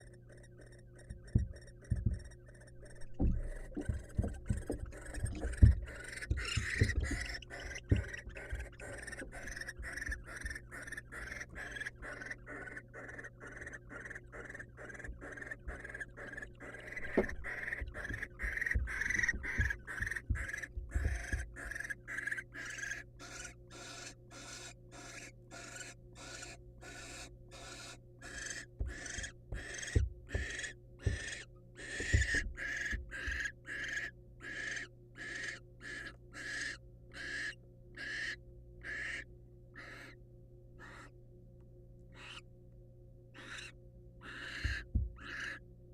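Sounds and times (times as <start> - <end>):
owl rasping begging calls: 0.0 - 40.2, 40.8 - 41.2, 42.1 - 42.4, 43.3 - 45.6
owls scuffling on wooden floor: 1.0 - 11.9, 15.0 - 21.9, 28.4 - 33.5.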